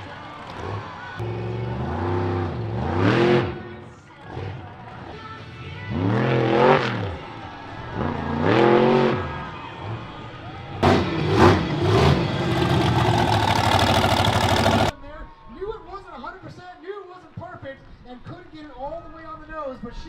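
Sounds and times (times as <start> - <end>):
monster truck engine revving: 0.6 - 3.6, 5.9 - 7.1, 8.0 - 9.3, 10.8 - 14.9.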